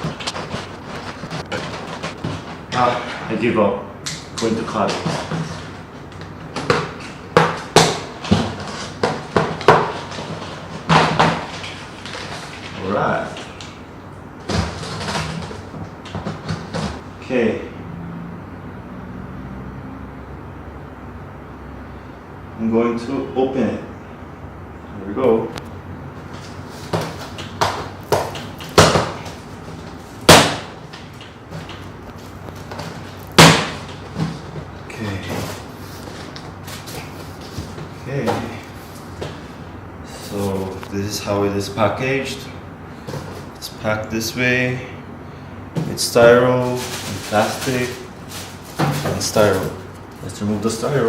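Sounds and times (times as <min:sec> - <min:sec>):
sharp knocks and scrapes: 0:00.0 - 0:03.3.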